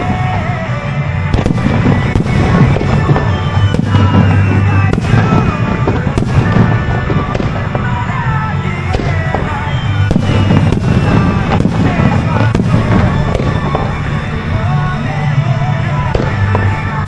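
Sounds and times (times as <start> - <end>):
music playing: 0.0 - 17.0
firework shells bursting: 1.2 - 14.3.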